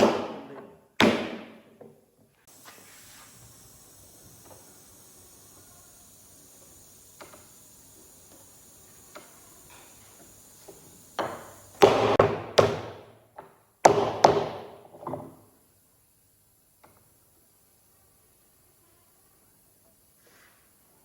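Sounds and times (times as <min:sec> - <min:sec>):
heavy knocks on wood: 0:11.2 - 0:13.1, 0:13.8 - 0:15.4.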